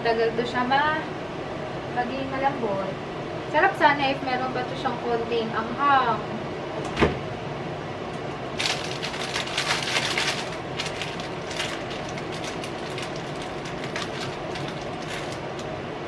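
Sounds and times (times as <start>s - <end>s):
plastic packaging crinkling: 8.6s - 15.7s.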